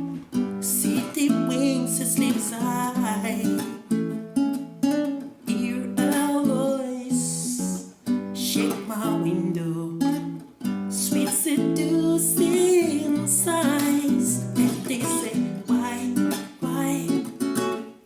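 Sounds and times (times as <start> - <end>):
acoustic guitar: 0.0 - 18.0
person singing: 0.6 - 3.8, 5.5 - 17.6.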